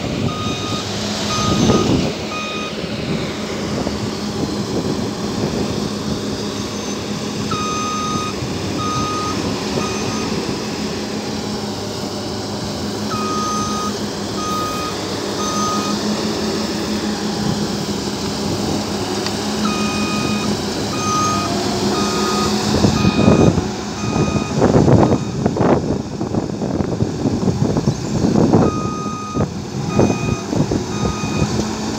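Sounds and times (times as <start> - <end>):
combine harvester engine running: 0.0 - 31.9
reversing alarm beeping: 0.3 - 2.8, 6.5 - 10.4, 13.1 - 16.5, 19.6 - 25.5, 28.6 - 31.5.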